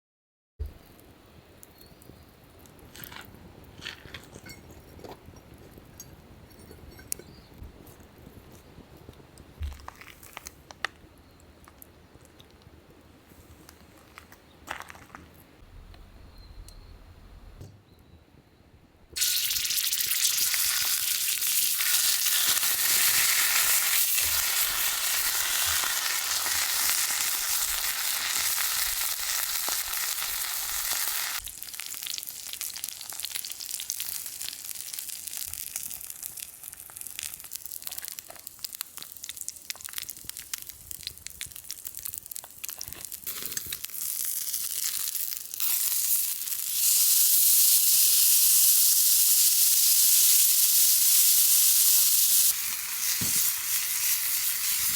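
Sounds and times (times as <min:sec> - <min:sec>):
steak sizzling on a griddle: 0:19.2 - 0:41.0, 0:41.7 - 0:54.9.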